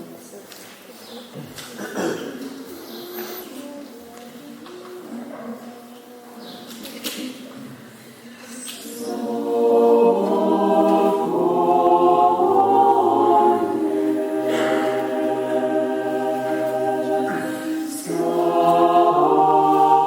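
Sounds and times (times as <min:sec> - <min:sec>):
church choir singing a cappella: 0:07.5 - 0:20.0.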